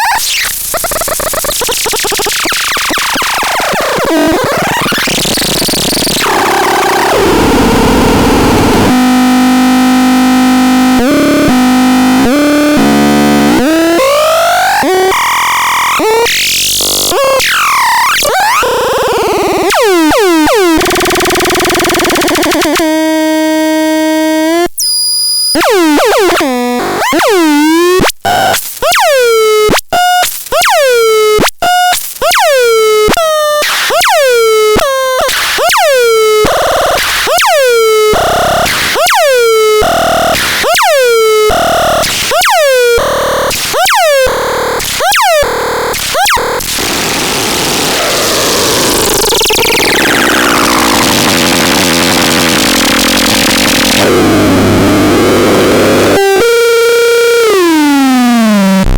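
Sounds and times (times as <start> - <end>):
buzzy synth tones and glides: 46.8 - 57.8.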